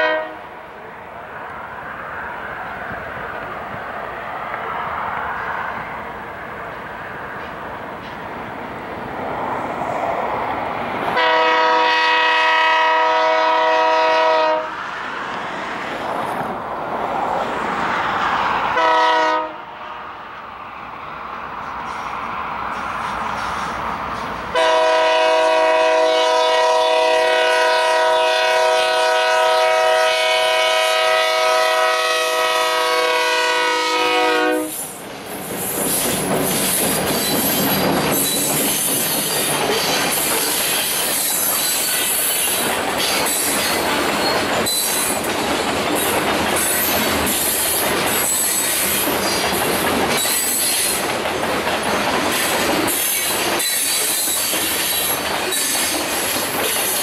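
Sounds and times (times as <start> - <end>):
locomotive air horn blast: 0.0 - 0.5, 11.2 - 14.8, 18.8 - 20.2, 24.5 - 34.9
train cars rolling past: 0.0 - 57.0
wheels clacking over rail joints: 2.6 - 9.6, 34.8 - 57.0.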